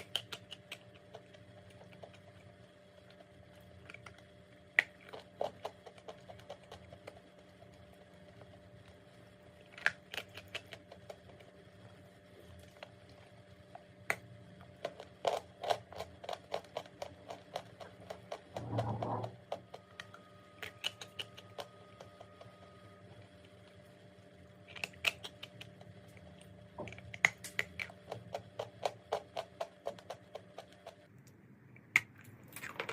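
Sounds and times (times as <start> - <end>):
chalk being bitten and chewed: 0.0 - 2.5, 9.6 - 11.6, 19.9 - 22.5, 24.6 - 31.0.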